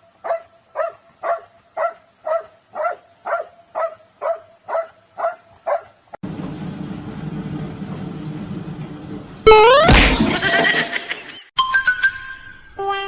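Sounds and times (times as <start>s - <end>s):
dog barking: 0.2s - 6.0s.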